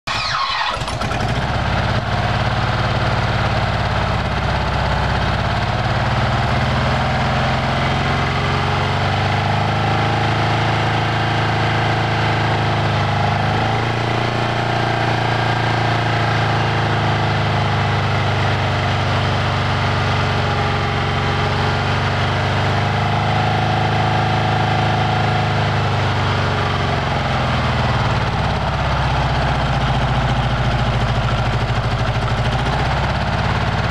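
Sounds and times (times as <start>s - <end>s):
car engine idling: 0.2s - 6.6s, 26.6s - 33.9s.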